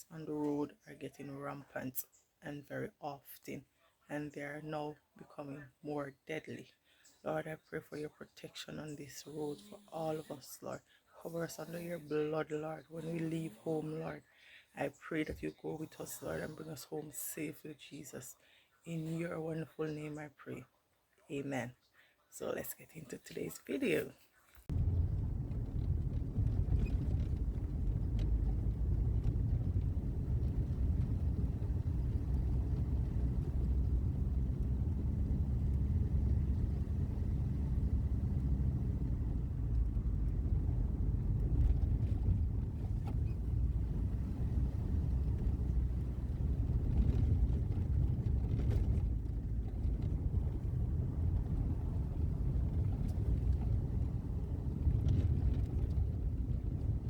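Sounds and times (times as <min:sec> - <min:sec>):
car road and engine rumble: 0:24.7 - 0:57.0.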